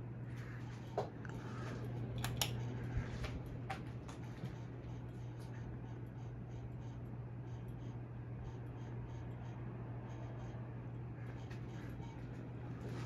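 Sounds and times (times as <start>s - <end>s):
ceiling fan motor hum: 0.0s - 13.0s
sharp clicks: 2.2s - 2.6s.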